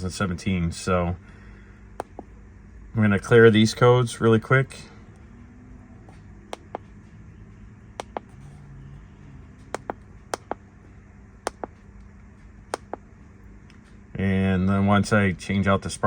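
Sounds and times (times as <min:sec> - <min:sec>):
low steady hum: 0:00.0 - 0:16.0
scanner button clicks: 0:06.5 - 0:06.9, 0:08.0 - 0:08.3, 0:09.7 - 0:10.6, 0:11.5 - 0:11.8, 0:12.8 - 0:13.0.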